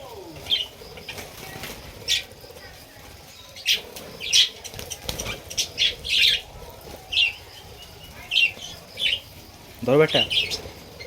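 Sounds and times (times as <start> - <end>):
wings fluttering: 0.0 - 11.0
budgerigars chirping: 3.4 - 11.0.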